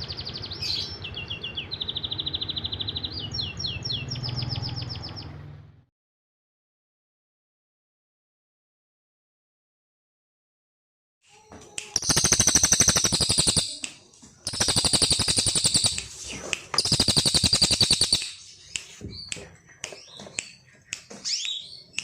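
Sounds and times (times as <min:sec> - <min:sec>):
songbird rattling trills: 0:11.9 - 0:16.2, 0:16.8 - 0:21.8
bird chirps and rising whistles: 0:12.0 - 0:13.9, 0:14.5 - 0:19.3.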